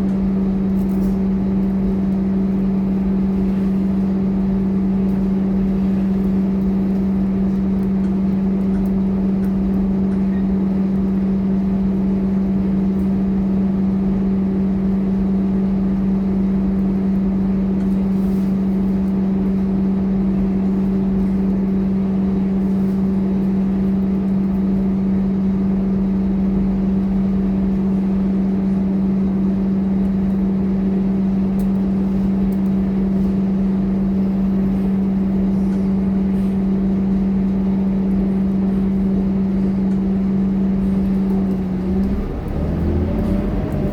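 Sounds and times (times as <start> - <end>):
bus engine humming: 1.6 - 7.8, 39.5 - 43.9.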